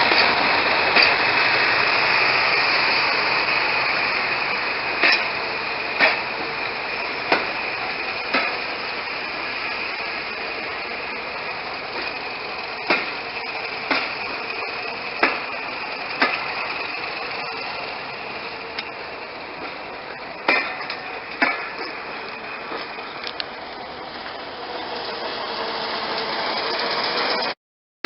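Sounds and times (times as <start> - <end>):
diesel train running: 0.0 - 27.6
sharp knocks: 20.4 - 22.0.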